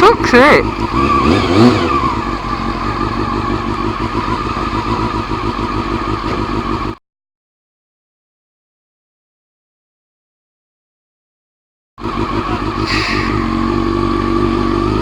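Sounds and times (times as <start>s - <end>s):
motorcycle engine running: 0.0s - 7.0s, 12.0s - 15.0s.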